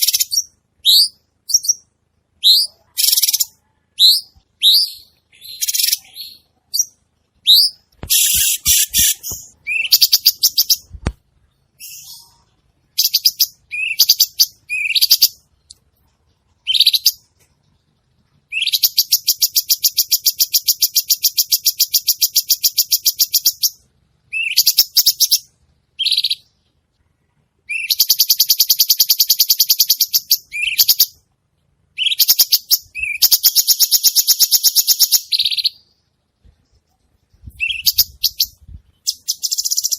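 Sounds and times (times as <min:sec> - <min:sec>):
bird whistling: 0:00.0 - 0:01.8, 0:02.4 - 0:10.9, 0:13.0 - 0:15.4, 0:24.3 - 0:25.4, 0:27.7 - 0:31.1, 0:32.0 - 0:35.8, 0:37.6 - 0:39.9
bird buzzy trills: 0:00.0 - 0:11.0.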